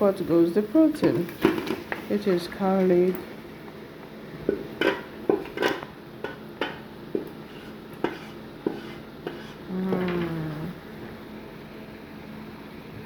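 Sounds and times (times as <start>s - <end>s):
meat pieces clattering into metal pot: 4.5s - 6.8s.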